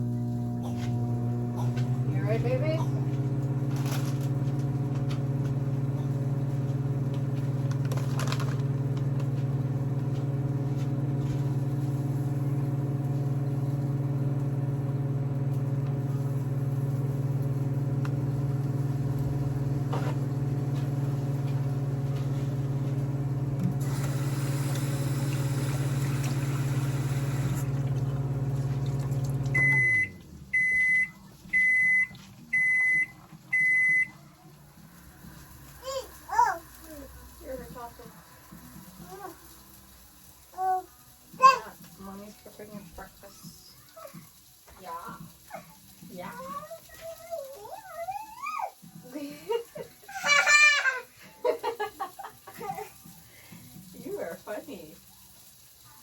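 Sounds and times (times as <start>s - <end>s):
microwave oven humming: 0.0s - 42.2s.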